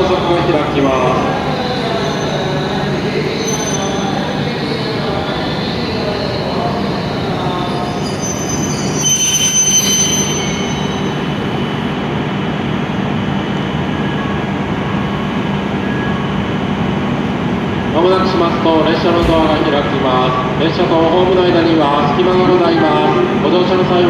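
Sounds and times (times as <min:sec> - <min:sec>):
high brake squeal: 0:01.0 - 0:11.8
train running rumble: 0:10.0 - 0:24.0.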